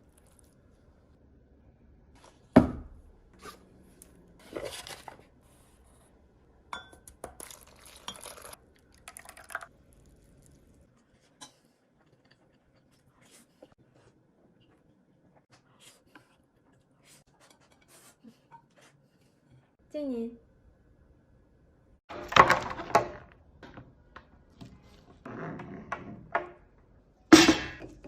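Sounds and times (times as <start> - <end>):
dishes and utensils clinking: 6.7 - 8.6.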